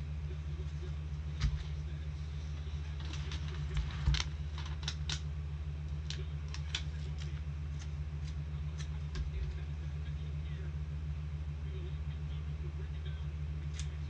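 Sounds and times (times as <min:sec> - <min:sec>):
steady low hum: 0:00.0 - 0:14.0
plastic sleeves rustling: 0:02.5 - 0:05.3
trading cards clicking and snapping: 0:03.0 - 0:05.3, 0:05.9 - 0:09.5, 0:13.7 - 0:14.0.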